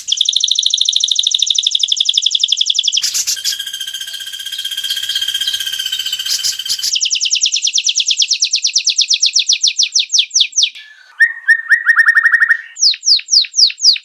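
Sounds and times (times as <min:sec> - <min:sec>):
buzzing bird trill: 0:03.0 - 0:07.1
bird whistling descending notes: 0:03.0 - 0:07.8, 0:10.7 - 0:13.2.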